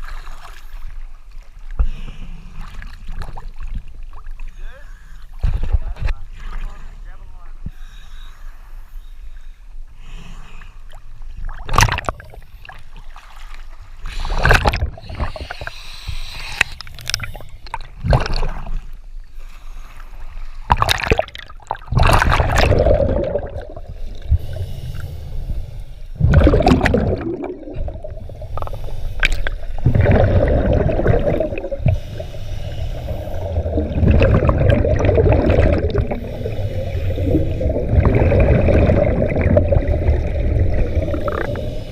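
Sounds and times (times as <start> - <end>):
water splashing and gurgling: 0.0 - 7.0, 10.9 - 25.4, 26.1 - 41.9
loud water splashes: 26.2 - 28.0.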